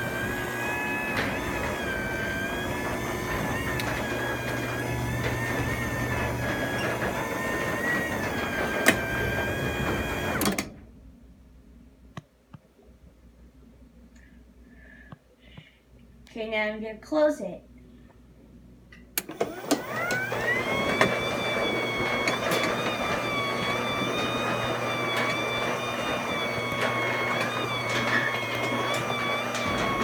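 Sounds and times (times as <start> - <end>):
garage door opener hum and whine: 0.0 - 11.2, 19.0 - 30.0.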